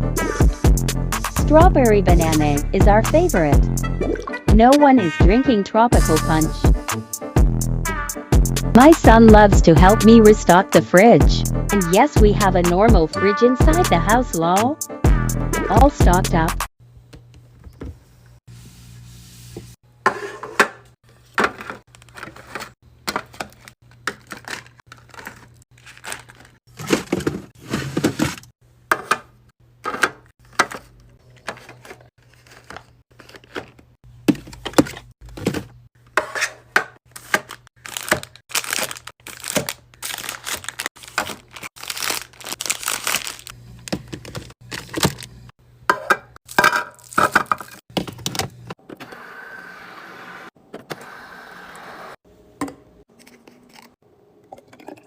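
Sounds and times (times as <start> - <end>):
items clicking and knocking: 20.5 - 25.6, 26.3 - 38.3, 43.8 - 49.0
packaging crinkling: 23.5 - 27.2, 37.1 - 45.4.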